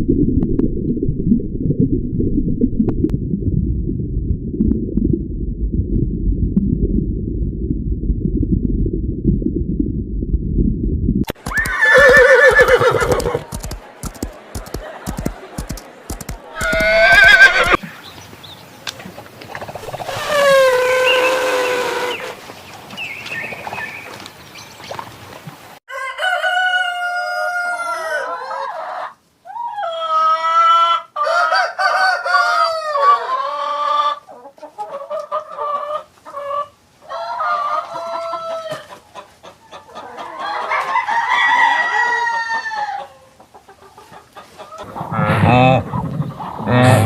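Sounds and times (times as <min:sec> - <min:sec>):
short clucking calls: 0:11.3 - 0:17.8
rooster crowing: 0:16.6 - 0:17.8, 0:25.9 - 0:34.2, 0:40.4 - 0:43.1.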